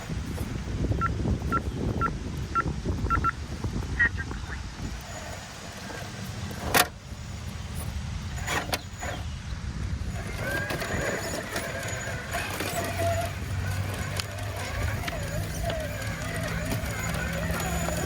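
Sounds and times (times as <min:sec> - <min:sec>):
small electric motor whining: 0:10.0 - 0:18.0.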